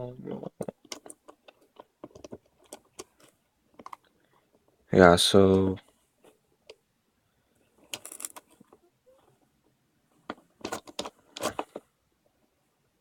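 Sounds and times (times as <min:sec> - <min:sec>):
plastic puzzle pieces clicking: 0:00.5 - 0:04.0, 0:07.9 - 0:08.6.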